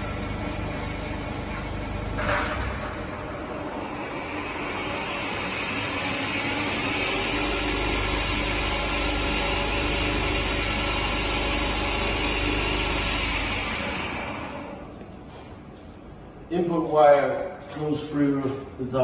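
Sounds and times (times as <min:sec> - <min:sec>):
wire drawing machine whirring: 0:00.0 - 0:15.0.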